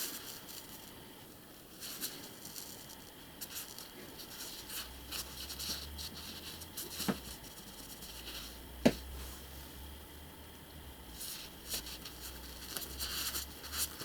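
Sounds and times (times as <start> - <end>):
scratchy rustling and scraping: 0.0 - 1.0, 1.7 - 8.6, 11.1 - 14.0.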